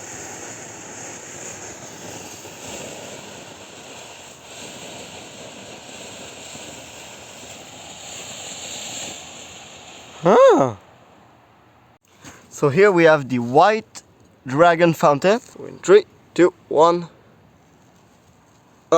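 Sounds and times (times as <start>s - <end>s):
firework fountain hissing: 0.0s - 11.3s.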